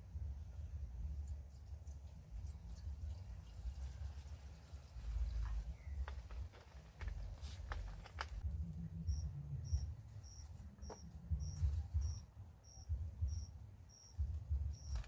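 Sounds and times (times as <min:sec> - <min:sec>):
low rumble: 0:05.0 - 0:15.0
cricket chirping: 0:09.1 - 0:15.0.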